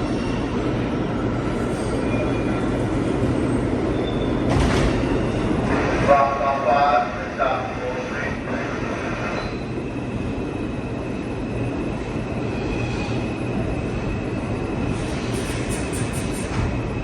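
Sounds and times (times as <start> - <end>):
subway train rumble: 0.0 - 17.0.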